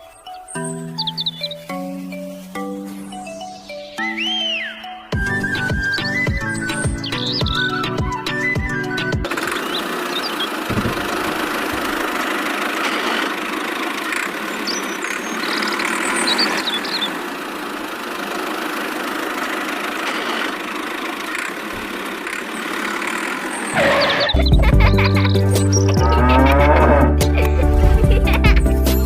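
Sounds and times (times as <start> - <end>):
bird chirps: 0.0 - 11.8, 14.1 - 17.2, 22.5 - 26.2
small motor running: 5.2 - 27.2.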